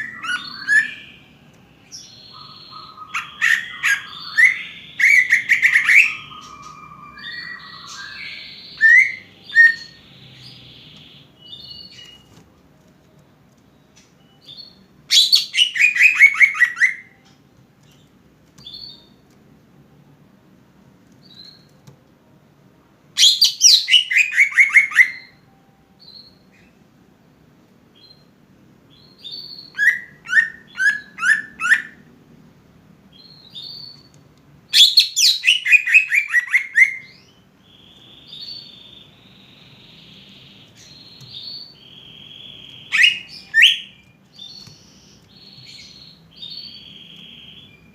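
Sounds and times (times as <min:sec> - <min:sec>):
bird singing trills: 0:00.0 - 0:12.3, 0:13.8 - 0:17.4, 0:34.8 - 0:47.9.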